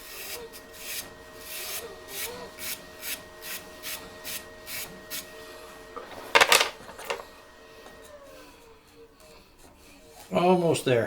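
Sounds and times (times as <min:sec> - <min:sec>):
lathe motor hum: 0:00.0 - 0:11.0
loud scrape: 0:06.0 - 0:07.2
rasping strokes on wood: 0:08.3 - 0:11.0.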